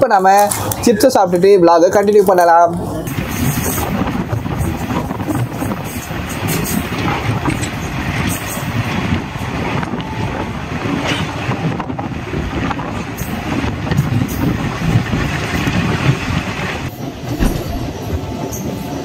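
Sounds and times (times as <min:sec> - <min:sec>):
train wheels rumbling on track: 0:00.2 - 0:19.0.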